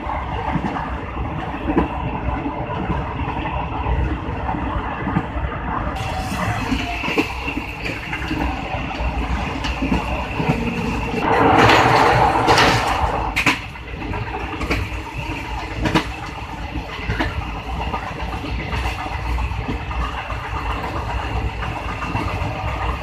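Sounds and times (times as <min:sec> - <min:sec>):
train wheels rumbling on rails: 0:00.0 - 0:23.0
wheels clicking over rail joints: 0:06.7 - 0:23.0.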